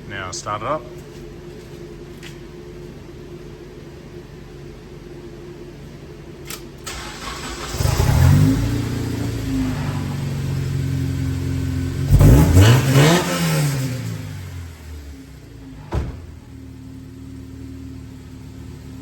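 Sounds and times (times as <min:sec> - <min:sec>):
car engine cranking and starting: 0:06.5 - 0:19.0
engine idling: 0:06.9 - 0:12.7, 0:14.4 - 0:19.0
engine revving: 0:06.9 - 0:15.2.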